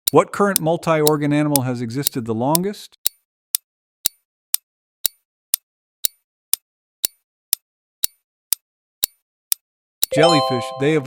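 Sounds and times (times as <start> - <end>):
clock ticking: 0.0 - 4.2, 5.0 - 9.2.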